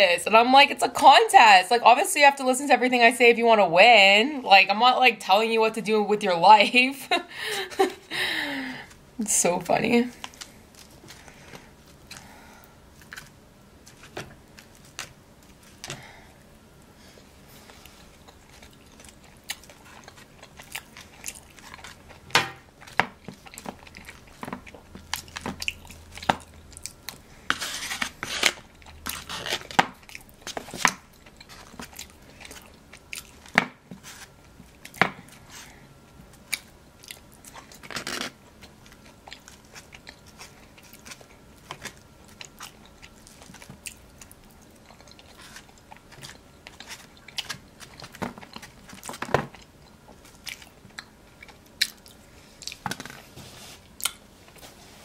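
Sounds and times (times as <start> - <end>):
wet chewing and mouth clicks: 17.8 - 27.2, 28.5 - 33.6, 38.5 - 53.1.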